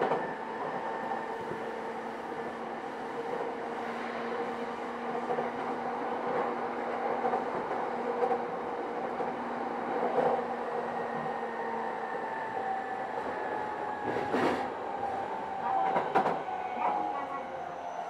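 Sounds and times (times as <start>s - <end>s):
train wheels rolling on rail: 0.0s - 18.0s.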